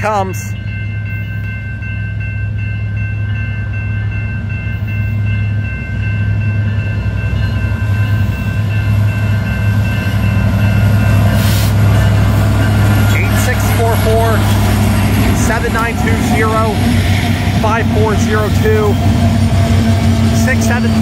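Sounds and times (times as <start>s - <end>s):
crossing bells ringing: 0.0s - 21.0s
diesel locomotive engine rumbling: 0.0s - 21.0s.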